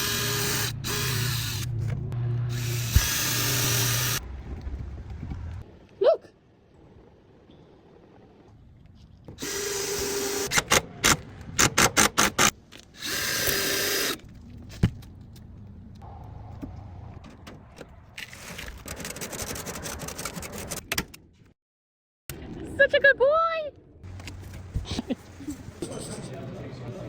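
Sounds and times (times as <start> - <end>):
handheld power tool running: 2.5 - 4.2.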